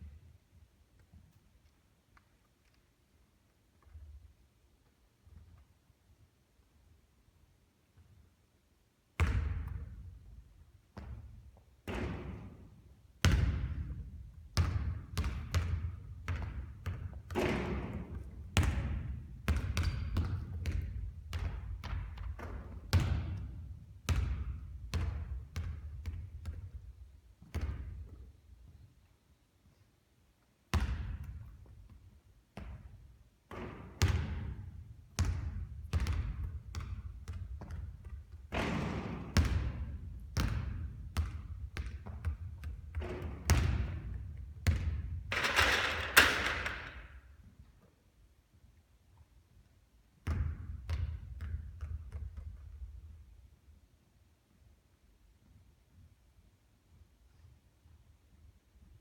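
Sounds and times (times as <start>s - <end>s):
basketball bouncing on hard court: 9.2s - 12.6s, 13.2s - 28.2s, 30.7s - 32.0s, 32.6s - 47.1s, 50.2s - 53.0s.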